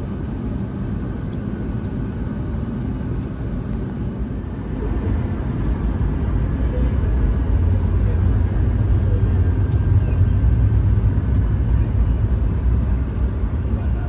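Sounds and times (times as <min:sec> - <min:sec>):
jet cabin engine rumble: 0:00.0 - 0:14.0.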